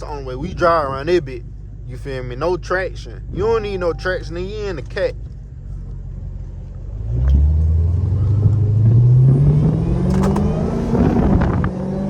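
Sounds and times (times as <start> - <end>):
car engine accelerating hard: 6.0 - 12.0.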